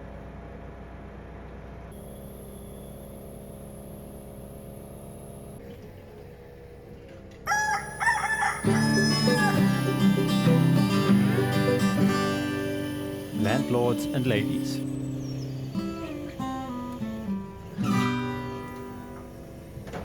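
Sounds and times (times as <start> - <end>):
rooster crowing: 7.5 - 13.2
steady low hum: 7.8 - 20.0
acoustic guitar music: 8.5 - 19.8.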